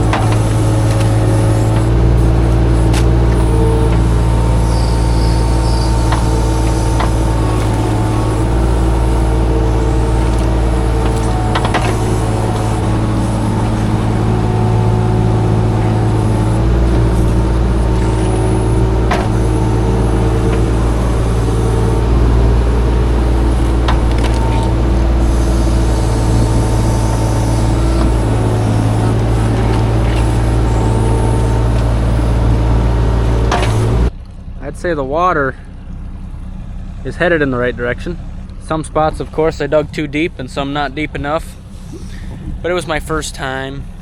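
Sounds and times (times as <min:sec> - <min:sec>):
excavator engine running: 0:00.0 - 0:44.0
sharp clicks and knocks: 0:09.9 - 0:14.2, 0:16.6 - 0:21.6, 0:33.4 - 0:34.4.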